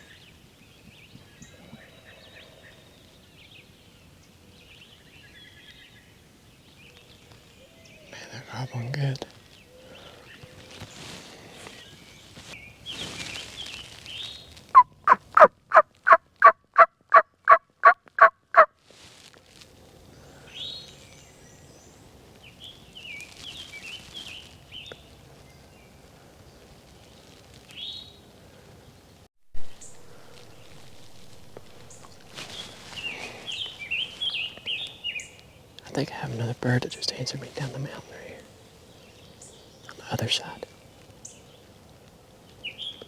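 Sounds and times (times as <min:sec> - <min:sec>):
faint songbird chirps: 0:00.0 - 0:15.1, 0:20.1 - 0:41.8, 0:42.4 - 0:43.0
turkey call yelps: 0:14.8 - 0:18.7
short thump: 0:29.6 - 0:32.4.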